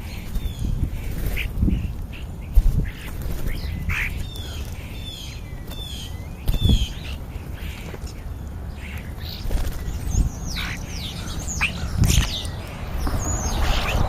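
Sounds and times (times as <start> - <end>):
starlings whistling and chirping: 2.5 - 14.0
low rumble: 11.9 - 14.0.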